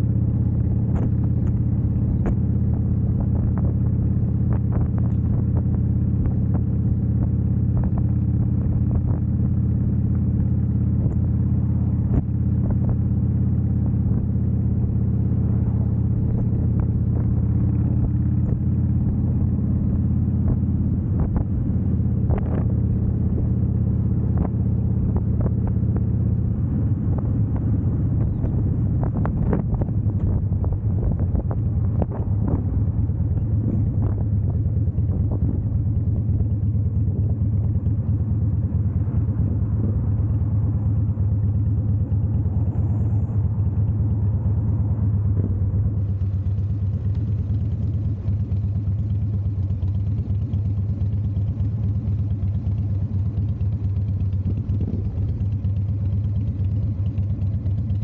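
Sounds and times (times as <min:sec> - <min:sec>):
motorcycle engine rumbling: 0:00.0 - 0:58.0
wind buffeting microphone: 0:27.1 - 0:37.6.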